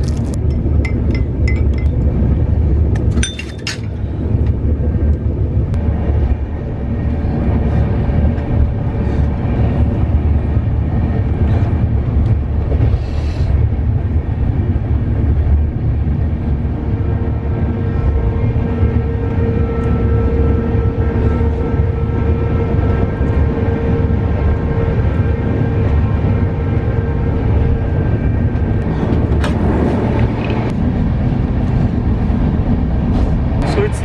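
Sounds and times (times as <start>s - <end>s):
train wheels rumbling on rails: 0.0s - 34.0s
clinks: 0.4s - 2.1s, 3.0s - 4.1s.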